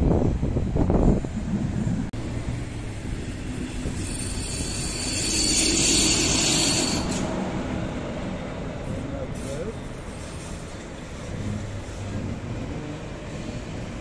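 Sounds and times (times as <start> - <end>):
wheels rumbling on rail: 0.0 - 14.0
locomotive whine: 0.1 - 14.0
locomotive hiss: 8.8 - 12.1.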